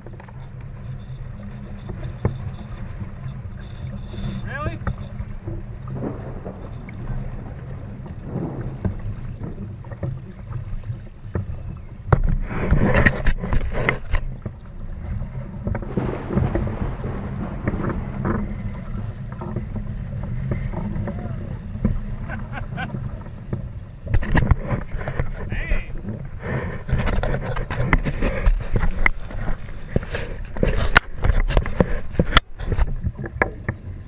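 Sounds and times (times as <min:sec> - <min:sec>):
water noise from boat: 0:00.0 - 0:34.0
wind rumbling on microphone: 0:00.0 - 0:34.0
splashing and knocking: 0:04.8 - 0:14.6, 0:15.6 - 0:21.2.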